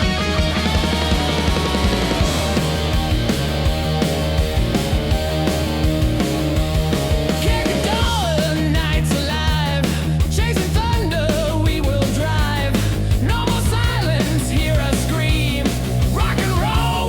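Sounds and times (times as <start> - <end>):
electric guitar lead: 0.0 - 8.2
bass and drums: 0.0 - 17.0.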